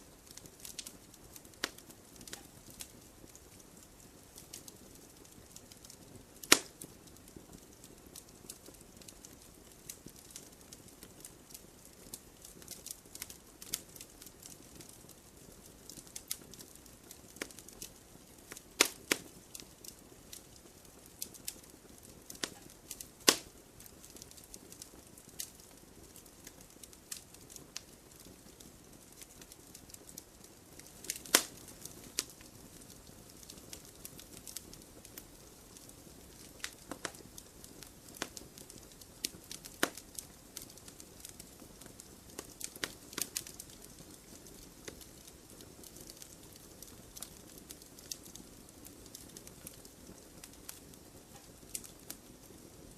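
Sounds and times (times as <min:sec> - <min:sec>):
campfire crackling: 0:00.0 - 0:52.9
faint low hiss: 0:00.0 - 0:52.9.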